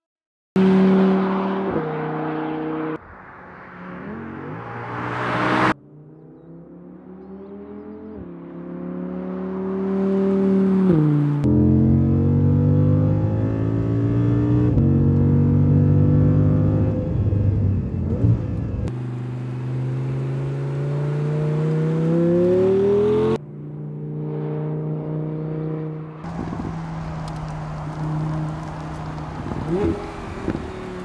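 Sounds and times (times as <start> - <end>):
car engine revving hard: 19.8 - 23.4.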